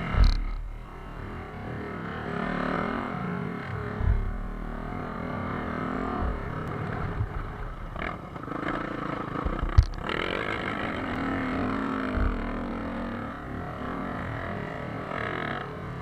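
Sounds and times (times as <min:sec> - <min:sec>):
low thumps: 0:00.0 - 0:01.8, 0:03.7 - 0:14.1
motocross bike engine revving: 0:00.0 - 0:16.0.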